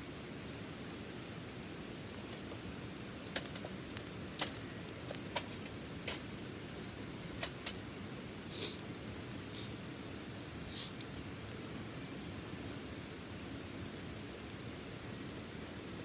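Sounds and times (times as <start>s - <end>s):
wood fire crackling: 0.0s - 16.0s
hissing spurt: 8.5s - 8.8s, 10.7s - 11.0s.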